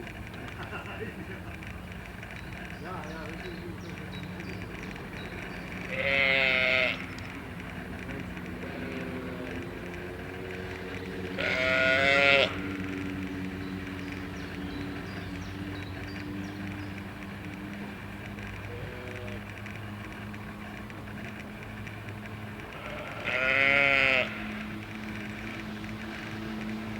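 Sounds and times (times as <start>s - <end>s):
sheep bleating: 5.9s - 7.1s, 11.4s - 12.6s, 22.8s - 24.5s.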